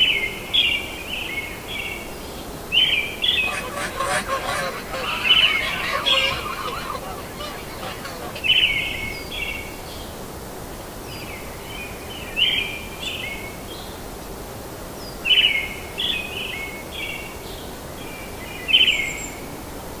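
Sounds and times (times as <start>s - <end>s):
birds chirping rapidly: 3.4s - 8.8s.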